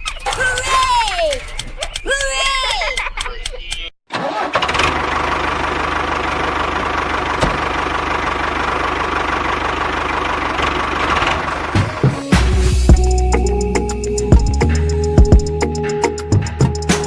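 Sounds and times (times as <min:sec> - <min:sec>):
small engine chugging: 0:04.4 - 0:11.9.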